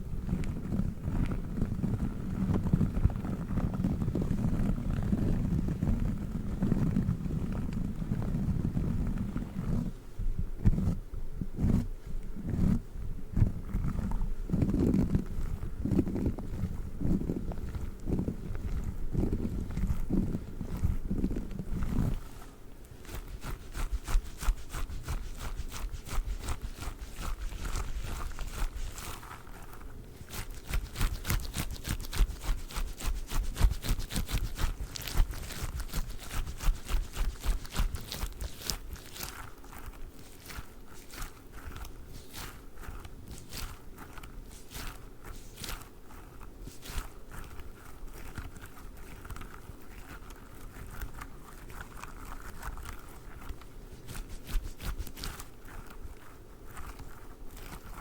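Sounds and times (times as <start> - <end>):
squishy toy crackly squishes: 13.6 - 58.0.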